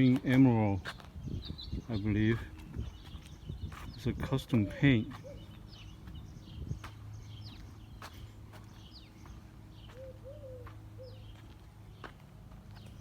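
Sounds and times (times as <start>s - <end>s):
birds chirping: 0.0s - 13.0s
soft footsteps: 2.3s - 13.0s
bird cooing: 4.6s - 5.6s, 9.9s - 11.4s.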